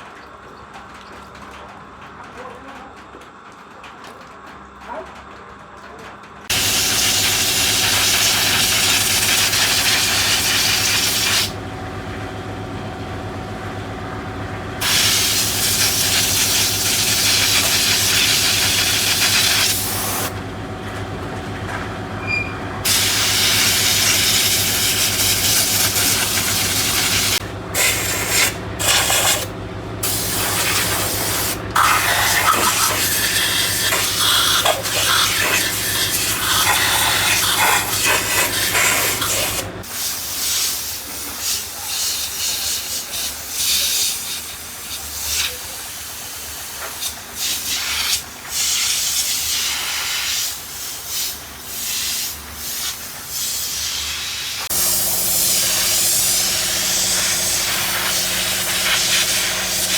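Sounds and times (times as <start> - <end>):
loud hissing spray: 6.5 - 11.6, 14.8 - 20.4, 22.8 - 59.9
steady machine hum: 6.5 - 39.9, 54.7 - 59.9.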